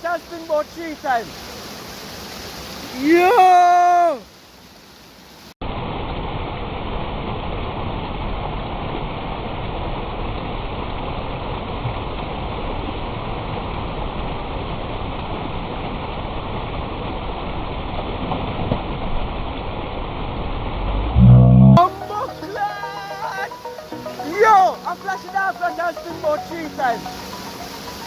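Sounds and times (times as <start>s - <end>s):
flowing water rushing: 0.0s - 28.0s.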